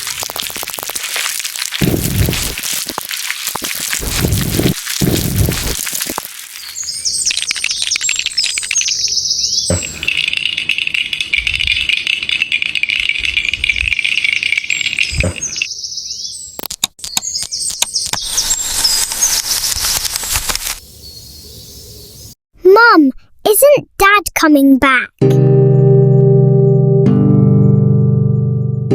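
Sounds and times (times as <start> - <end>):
birds chirping: 4.0 - 19.6, 20.8 - 22.4
sharp clicks: 16.6 - 20.8.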